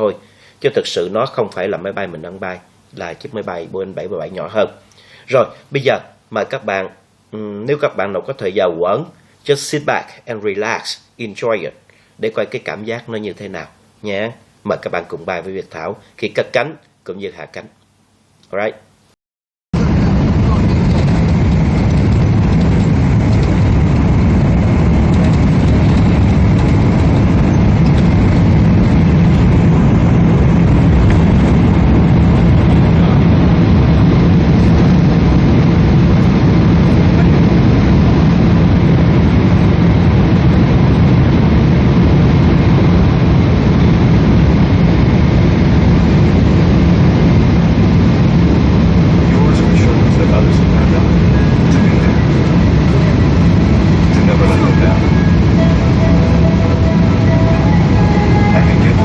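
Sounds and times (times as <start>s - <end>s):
jet engine cabin hum: 19.8s - 59.0s.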